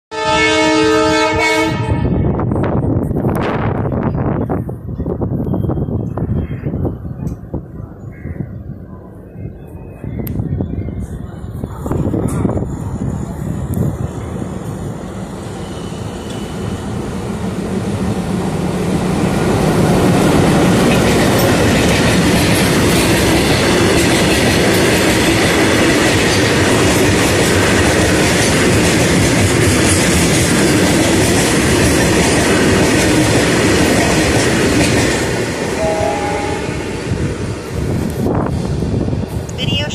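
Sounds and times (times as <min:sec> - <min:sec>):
diesel locomotive passing: 0:00.1 - 0:39.9
train wagons clattering over rails: 0:19.6 - 0:35.8.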